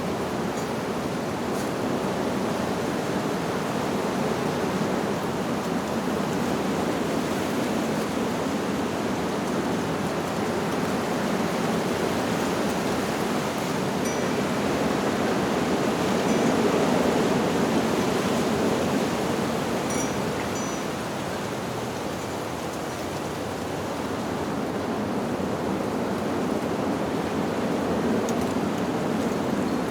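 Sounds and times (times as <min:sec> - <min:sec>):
wind through leaves: 0:00.0 - 0:29.9
faint high chime: 0:14.0 - 0:15.0, 0:19.9 - 0:21.1.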